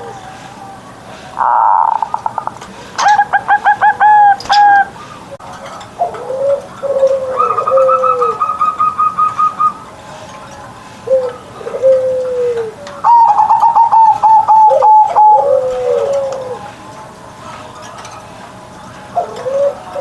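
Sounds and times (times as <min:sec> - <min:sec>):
doves cooing: 0:00.0 - 0:10.3, 0:10.9 - 0:18.2, 0:18.8 - 0:20.0
buzzy bird call: 0:01.4 - 0:05.2.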